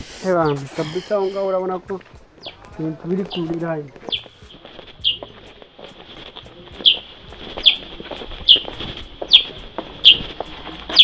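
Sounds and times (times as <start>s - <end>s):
bird chirping: 2.3s - 5.6s, 6.5s - 10.3s.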